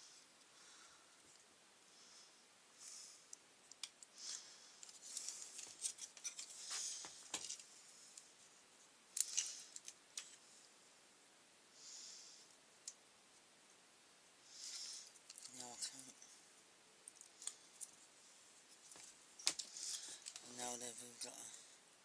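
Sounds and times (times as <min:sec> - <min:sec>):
clicks and rustles of small parts: 0:03.3 - 0:08.4, 0:09.1 - 0:10.5, 0:14.6 - 0:16.3, 0:17.0 - 0:21.6.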